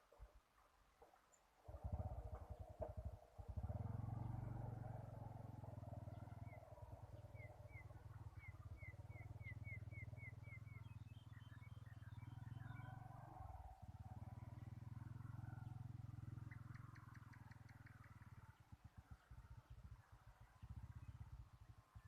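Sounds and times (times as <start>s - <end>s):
faint low rumble: 0.0s - 22.0s
bird chirping and twittering: 6.1s - 13.0s, 15.6s - 21.3s.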